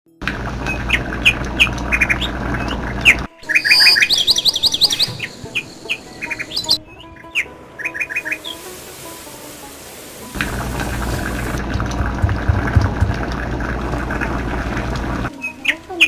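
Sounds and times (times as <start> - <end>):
birds chirping and squawking: 0.7 - 9.0.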